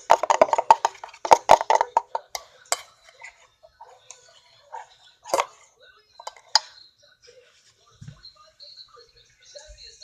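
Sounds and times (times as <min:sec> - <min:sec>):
utensil clinking against bowl: 0:00.0 - 0:03.4
faint handling sounds: 0:00.0 - 0:10.0.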